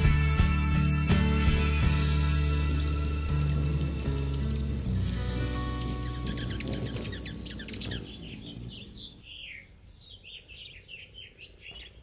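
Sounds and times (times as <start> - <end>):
guitar background music: 0.0 - 8.2
small bird chirping: 0.0 - 12.0.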